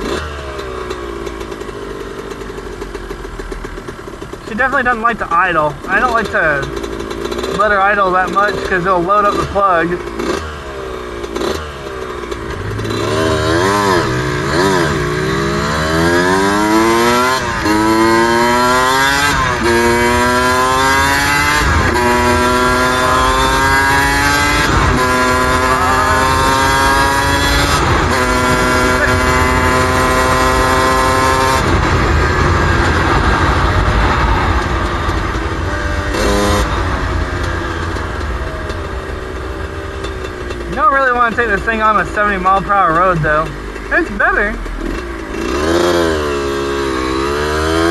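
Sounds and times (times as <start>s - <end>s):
motorcycle engine revving through gears: 0.0s - 47.9s.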